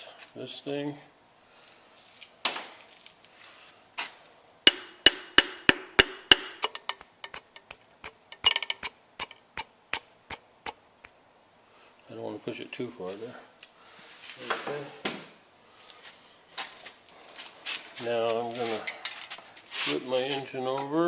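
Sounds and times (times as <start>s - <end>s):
mallet tapping piston into cylinder: 4.7s - 11.2s.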